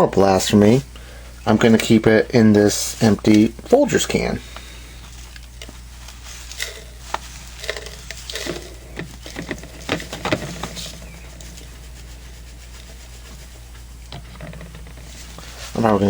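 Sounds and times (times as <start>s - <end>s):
coffee bag rustling: 2.6s - 16.0s
can scrapes and clicks: 6.5s - 10.9s.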